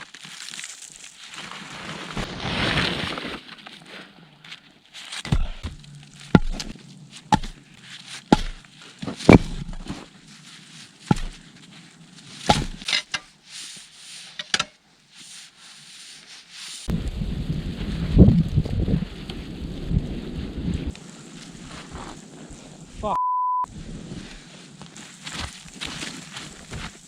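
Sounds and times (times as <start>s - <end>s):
sharp knocks: 5.3s - 6.7s, 7.3s - 7.6s, 8.3s - 8.6s, 11.1s - 11.4s, 12.5s - 12.8s
wind noise on microphone: 16.9s - 21.0s.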